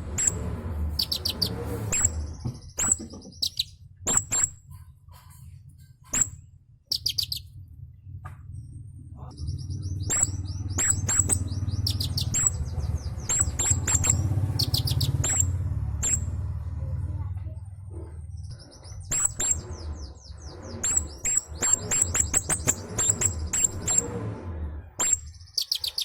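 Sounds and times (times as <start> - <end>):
kingfisher high chirps: 1.0 - 4.6, 6.2 - 7.5, 9.4 - 16.3, 25.1 - 26.0.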